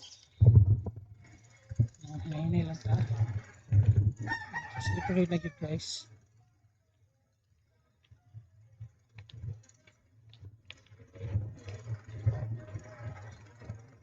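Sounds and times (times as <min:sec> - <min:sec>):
bicycle rattling on rough road: 0:00.0 - 0:14.0
bicycle clicks and knocks: 0:08.0 - 0:14.0.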